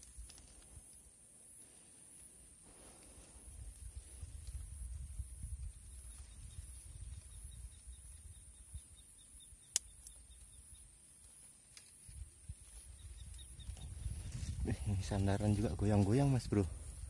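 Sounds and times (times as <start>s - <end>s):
wind rumbling on microphone: 2.7s - 9.2s, 12.0s - 17.0s.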